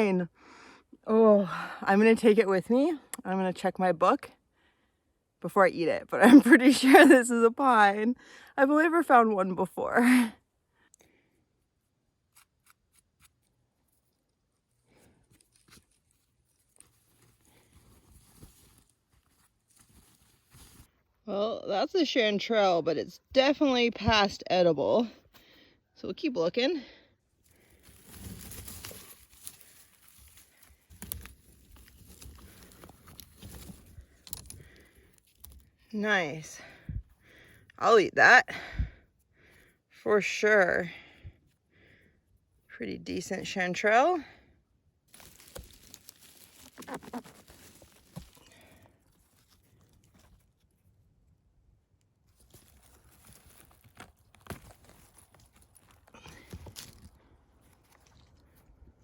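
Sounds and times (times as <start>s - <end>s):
twigs snapping: 27.5s - 35.8s, 45.1s - 50.4s, 52.4s - 58.7s
footsteps in leaf litter: 27.6s - 34.4s, 45.1s - 50.0s, 52.3s - 58.4s.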